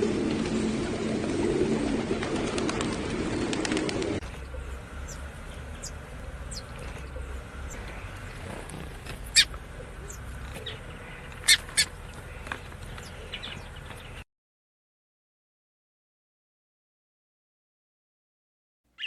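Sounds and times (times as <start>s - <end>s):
low steady rumble: 0.0s - 14.2s
birds chirping: 1.2s - 14.2s.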